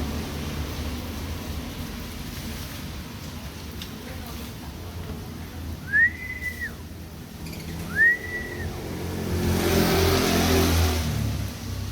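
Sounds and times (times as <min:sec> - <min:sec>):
loud whistles: 0:05.8 - 0:06.8, 0:07.9 - 0:08.8
vehicle engine accelerating past: 0:07.8 - 0:11.9.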